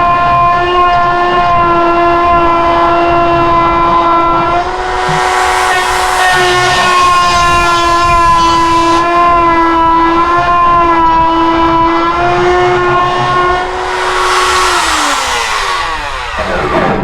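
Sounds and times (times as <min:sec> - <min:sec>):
grinding hiss on metal: 0:04.6 - 0:09.1, 0:13.6 - 0:17.0
die grinder whining: 0:12.3 - 0:17.0.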